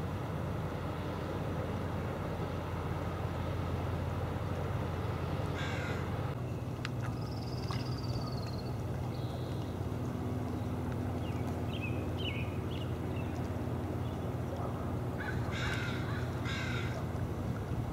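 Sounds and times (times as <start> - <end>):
steady low rumble: 0.0 - 17.9
birds calling: 4.9 - 17.2.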